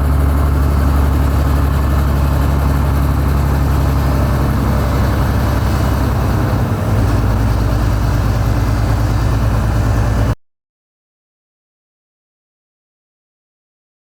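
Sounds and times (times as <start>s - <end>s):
heavy diesel engine running: 0.0s - 10.4s.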